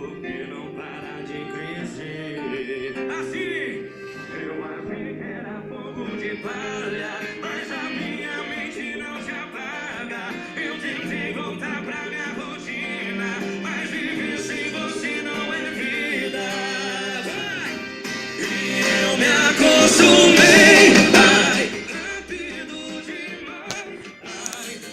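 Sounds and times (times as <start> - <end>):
music with singing voice: 0.0 - 24.9.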